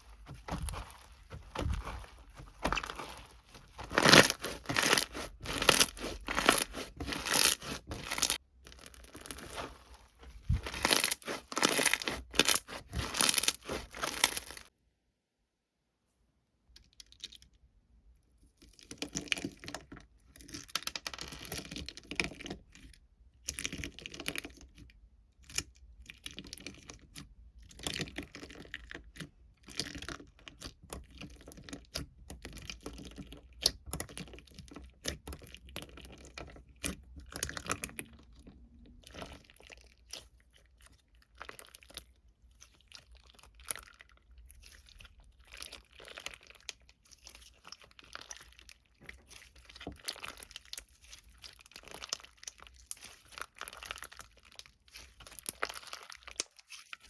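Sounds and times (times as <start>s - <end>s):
clicks crinkling and tearing: 0.2s - 14.7s.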